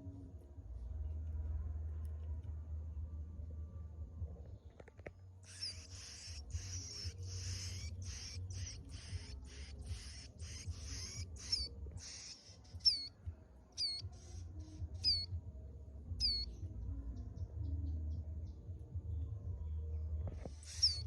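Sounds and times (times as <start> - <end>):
low steady hum: 0.0 - 21.0
bird harsh buzzy chips: 5.5 - 13.1
bird high whistled notes: 5.5 - 13.2, 13.8 - 15.4, 16.2 - 16.5, 20.6 - 21.0.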